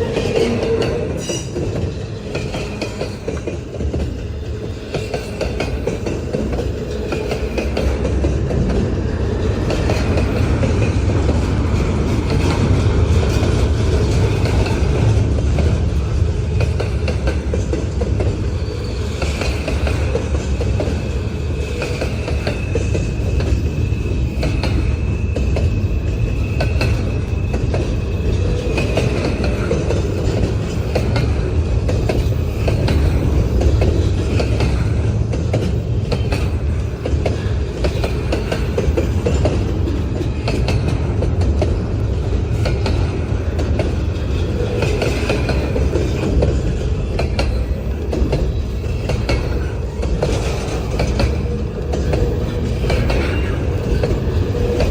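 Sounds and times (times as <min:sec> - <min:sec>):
deep train rumble: 0:00.0 - 0:54.9
train wheels clacking over rail joints: 0:00.0 - 0:54.9
high wheel squeal: 0:18.4 - 0:19.7, 0:47.4 - 0:54.9.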